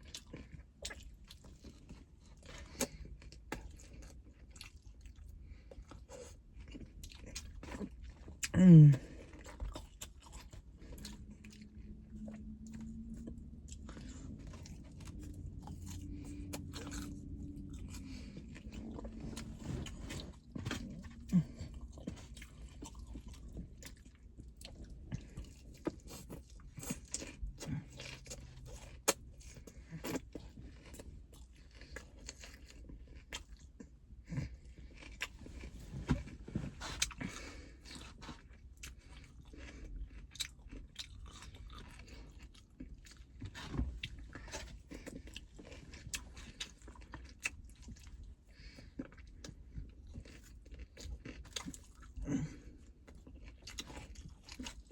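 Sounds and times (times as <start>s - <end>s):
low steady hum: 0.0s - 54.9s
person chewing and crunching food: 0.0s - 54.9s.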